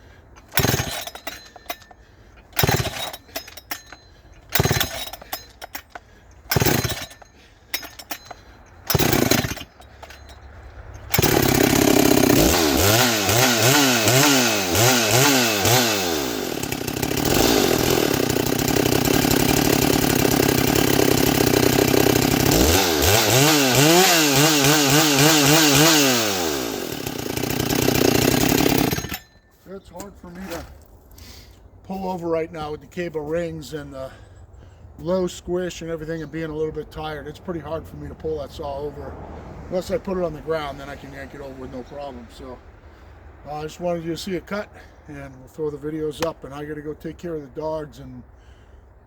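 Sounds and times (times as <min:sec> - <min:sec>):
chainsaw starter cord pulls: 0:00.3 - 0:31.6
chainsaw engine running: 0:00.4 - 0:30.8.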